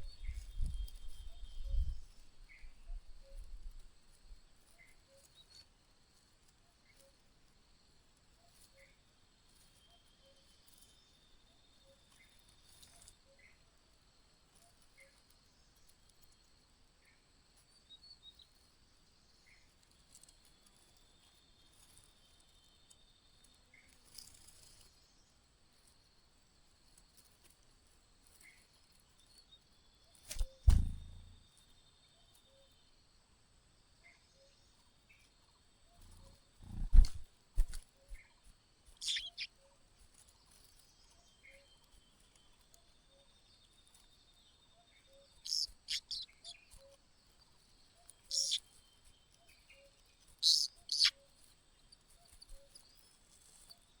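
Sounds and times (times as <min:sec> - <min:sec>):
bird chirps: 0:00.0 - 0:03.5, 0:30.3 - 0:31.4, 0:35.9 - 0:38.2, 0:39.0 - 0:39.7, 0:43.1 - 0:54.0
heavy low thumps: 0:30.6 - 0:31.4.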